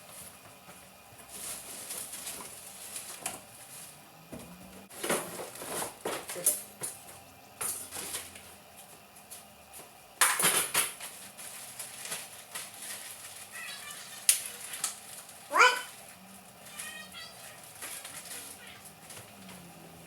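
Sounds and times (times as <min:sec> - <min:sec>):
rustling and clattering handling: 0:00.0 - 0:04.0, 0:10.4 - 0:15.5, 0:16.6 - 0:19.6.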